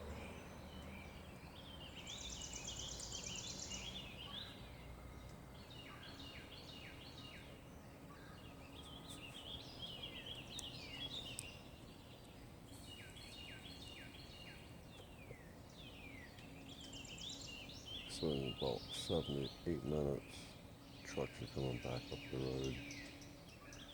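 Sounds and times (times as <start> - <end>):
faint low hum: 0.0 - 23.9
songbirds singing: 0.0 - 23.9.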